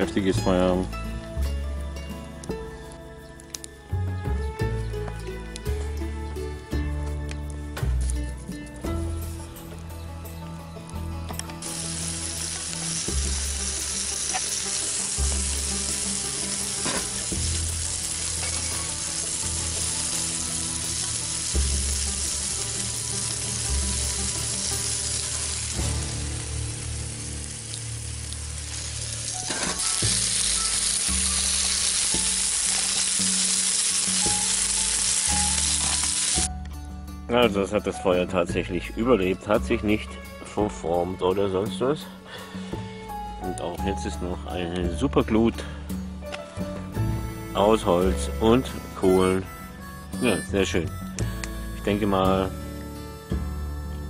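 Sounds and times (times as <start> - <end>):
background music: 0.0 - 54.0
meat sizzling on a grill pan: 11.6 - 36.5.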